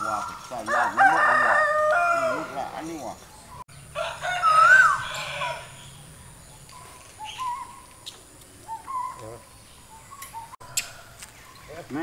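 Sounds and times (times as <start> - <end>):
bird hooting calls: 4.3 - 11.7.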